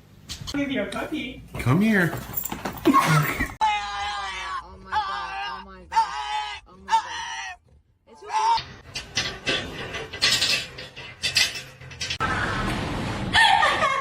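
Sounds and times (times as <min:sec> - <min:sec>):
animal crying: 0:03.0 - 0:08.7.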